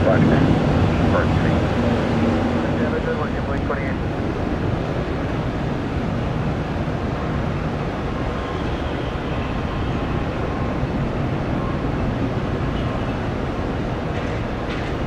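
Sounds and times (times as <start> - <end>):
faint whine: 0.0 - 6.0
jet engines rumbling: 0.0 - 15.0.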